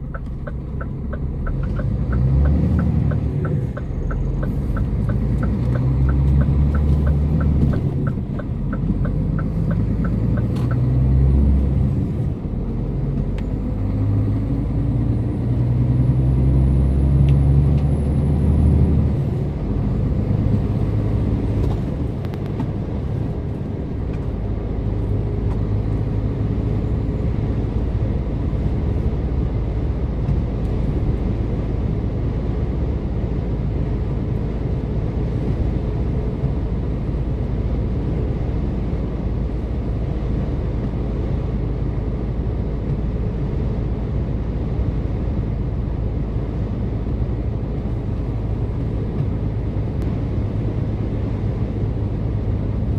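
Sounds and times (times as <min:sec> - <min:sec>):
rhythmic ticking: 0:00.0 - 0:10.8
truck diesel engine under load: 0:00.0 - 0:52.9.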